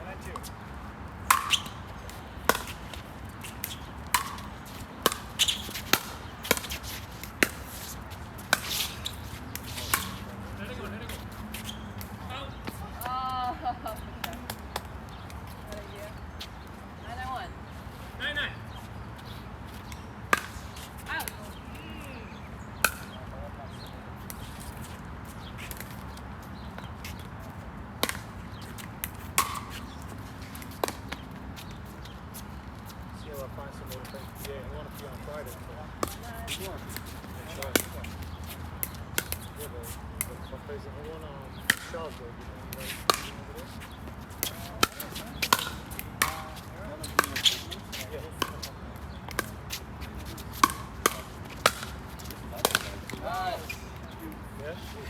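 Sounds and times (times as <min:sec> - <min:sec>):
ball bouncing on court: 0:02.5 - 0:02.8, 0:03.6 - 0:06.8, 0:44.4 - 0:48.7, 0:49.3 - 0:53.6.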